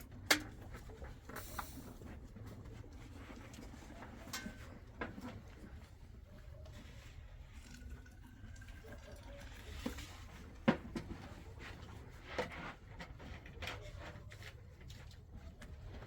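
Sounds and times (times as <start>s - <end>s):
knocks and clatters of objects: 0.0s - 6.2s, 9.6s - 16.0s.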